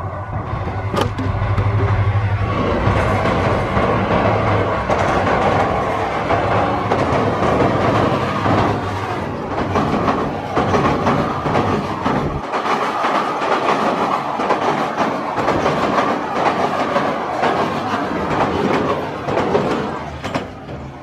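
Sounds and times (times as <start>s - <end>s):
diesel locomotive engine rumble: 0.0s - 21.0s
train wheels clattering: 0.8s - 21.0s.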